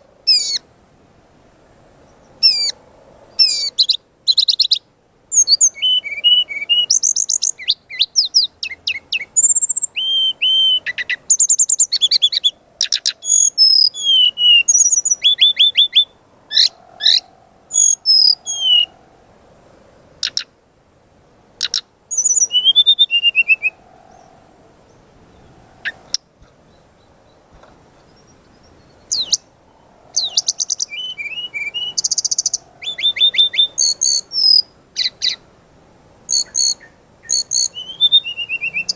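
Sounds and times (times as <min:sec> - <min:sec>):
bird singing whistled trills: 0:00.3 - 0:00.6, 0:02.1 - 0:02.8, 0:03.4 - 0:19.0, 0:21.6 - 0:24.2, 0:28.0 - 0:35.4, 0:36.3 - 0:38.9.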